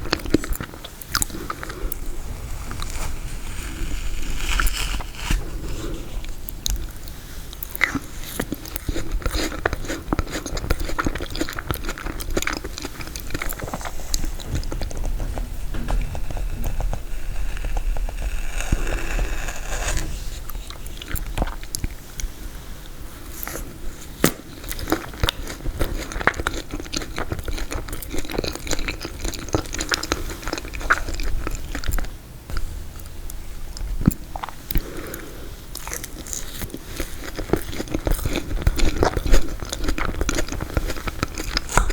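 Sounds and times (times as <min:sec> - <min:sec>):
crunching and chewing: 0:00.0 - 0:41.9
wet mouth sounds: 0:04.0 - 0:22.4, 0:23.3 - 0:41.9
crackly clicks of frozen cake: 0:23.4 - 0:33.1, 0:33.8 - 0:41.9.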